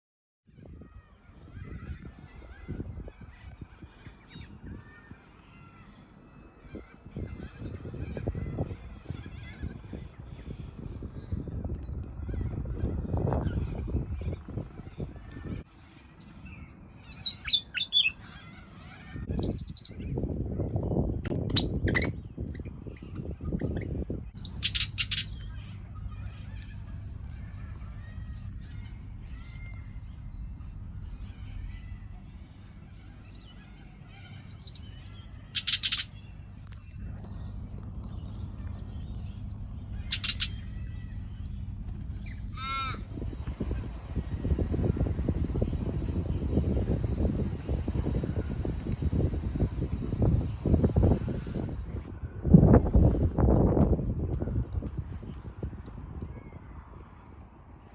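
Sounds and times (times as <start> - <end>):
steady low rumble: 0.7 - 18.4, 19.0 - 57.9
bird chirping: 16.5 - 18.3, 19.3 - 20.0, 21.3 - 37.5, 38.1 - 51.4
low rushing noise: 35.8 - 57.8.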